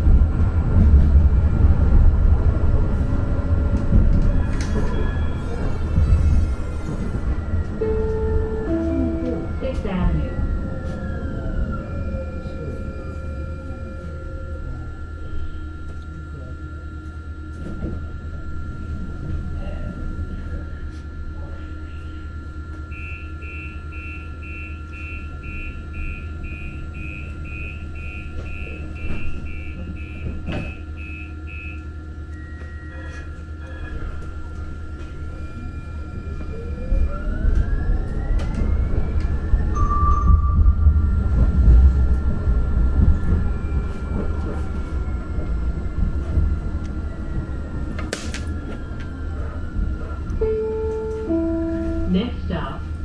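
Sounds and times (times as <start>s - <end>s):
light-rail car rumbling: 0.0s - 53.0s
low hum of stopped train: 0.0s - 53.0s
door warning beeps: 4.7s - 11.0s, 22.9s - 33.3s, 50.3s - 52.3s.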